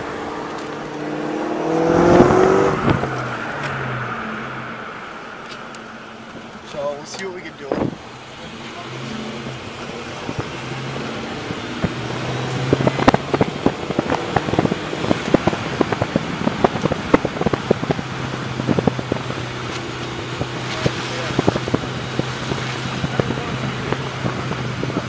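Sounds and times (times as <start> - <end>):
car engine running: 0.0 - 25.0
exhaust crackles and pops: 8.7 - 25.0.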